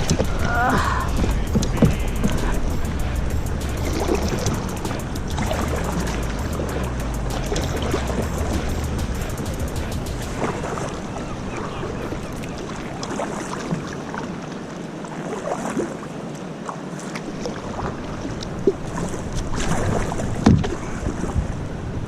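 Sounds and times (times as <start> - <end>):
river water rushing around kayak: 0.0 - 22.0
small splashes and ticks: 12.2 - 21.4.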